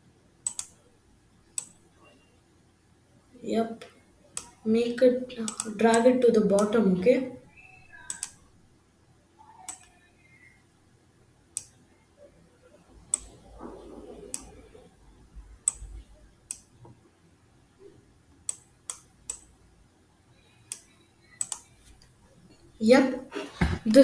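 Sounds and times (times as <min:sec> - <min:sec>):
computer mouse clicking: 0:00.4 - 0:00.8, 0:01.5 - 0:01.8, 0:05.4 - 0:06.8, 0:08.0 - 0:08.4, 0:09.6 - 0:10.0, 0:11.6 - 0:11.8, 0:13.0 - 0:14.7, 0:15.6 - 0:17.0, 0:18.4 - 0:19.5, 0:20.6 - 0:22.1.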